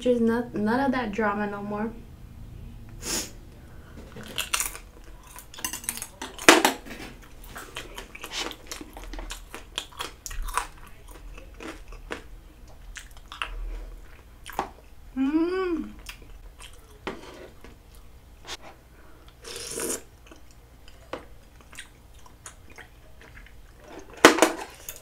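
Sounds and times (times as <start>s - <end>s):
wet chewing and mouth smacks: 7.6s - 14.8s, 20.2s - 23.8s.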